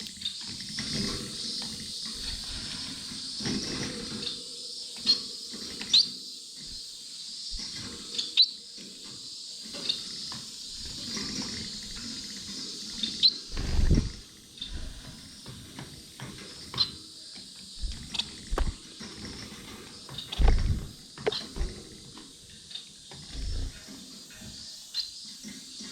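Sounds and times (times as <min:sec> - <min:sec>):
finches chirping: 0:00.0 - 0:25.9
low fluttering thump: 0:13.5 - 0:14.2, 0:17.8 - 0:18.8, 0:20.4 - 0:21.0.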